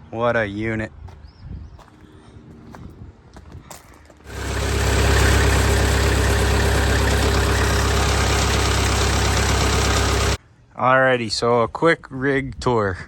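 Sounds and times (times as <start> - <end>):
engine idling: 4.2 - 10.4.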